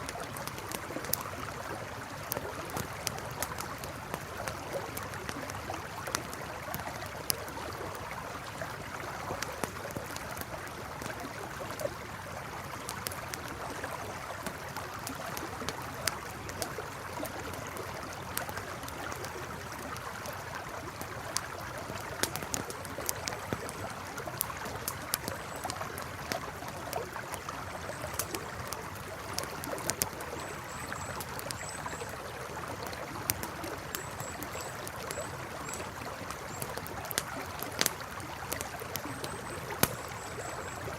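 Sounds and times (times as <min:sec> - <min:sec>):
campfire crackling: 0:00.0 - 0:40.9
river flowing: 0:00.0 - 0:40.9.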